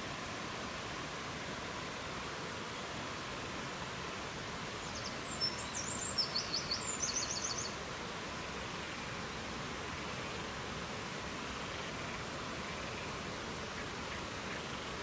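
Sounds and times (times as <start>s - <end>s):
songbird singing: 4.8s - 7.8s.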